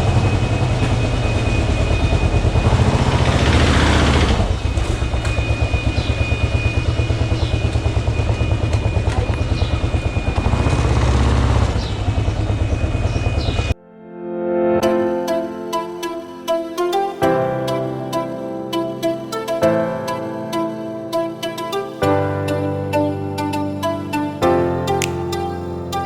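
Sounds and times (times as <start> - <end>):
motorcycle engine pulsing: 0.0 - 13.8.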